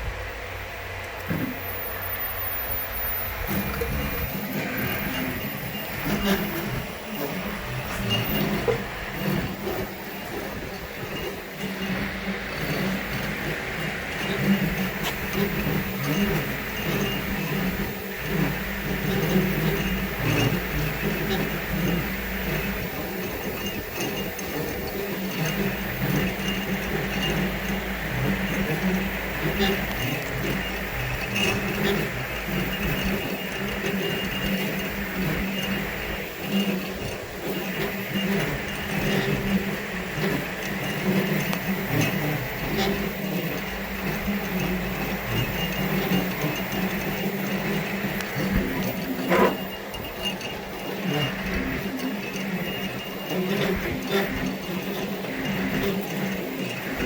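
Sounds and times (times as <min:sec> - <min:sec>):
high whine: 0:00.0 - 0:55.9
milling machine motor hum: 0:00.0 - 0:57.0.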